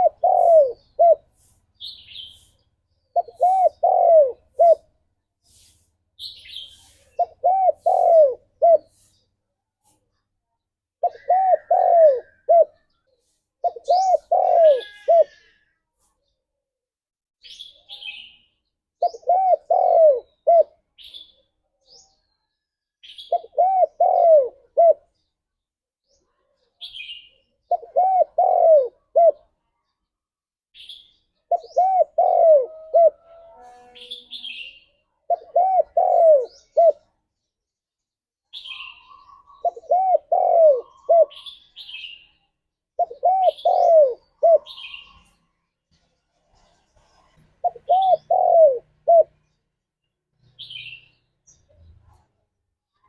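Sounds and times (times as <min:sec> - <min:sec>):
dove cooing: 0:00.0 - 0:01.3, 0:03.1 - 0:04.9, 0:07.1 - 0:08.9, 0:11.0 - 0:13.0, 0:13.6 - 0:15.6, 0:19.0 - 0:20.8, 0:23.3 - 0:25.1, 0:27.6 - 0:29.5, 0:31.5 - 0:34.1, 0:35.3 - 0:37.0, 0:38.8 - 0:41.5, 0:43.0 - 0:45.2, 0:47.0 - 0:49.4.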